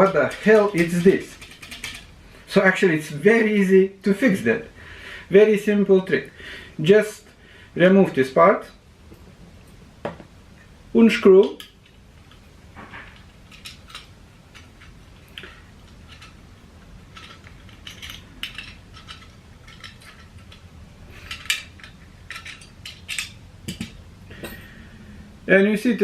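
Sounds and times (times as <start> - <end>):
screwdriver and screws clinking: 0.0 - 2.1.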